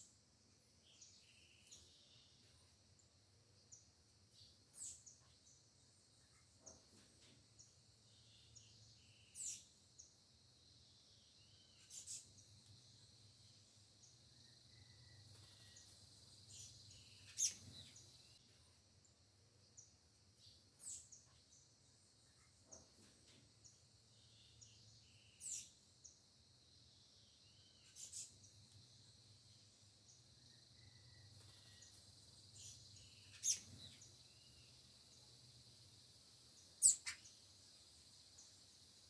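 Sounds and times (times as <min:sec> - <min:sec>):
birds chirping: 0:14.0 - 0:18.4, 0:30.1 - 0:38.7.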